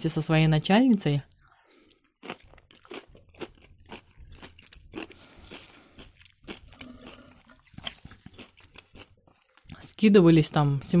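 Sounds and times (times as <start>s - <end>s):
wet chewing with mouth clicks: 1.3s - 9.8s.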